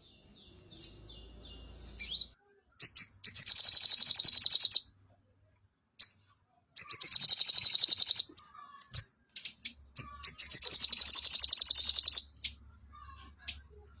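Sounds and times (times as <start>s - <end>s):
songbird chirps: 0.0s - 14.0s
songbird rattling trills: 2.8s - 4.8s, 6.8s - 8.3s, 9.0s - 12.6s.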